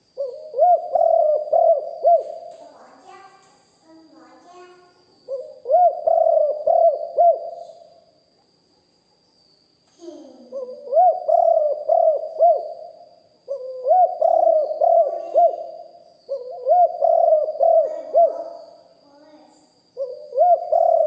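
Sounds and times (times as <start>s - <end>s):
doves cooing: 0.2s - 2.6s, 5.3s - 7.8s, 10.4s - 18.8s, 20.0s - 21.0s.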